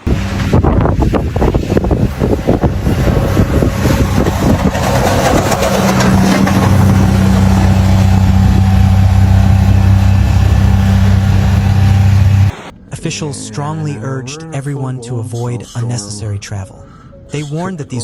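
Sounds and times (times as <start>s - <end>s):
wind buffeting microphone: 0.0s - 12.6s
vehicle engine humming: 0.0s - 18.0s.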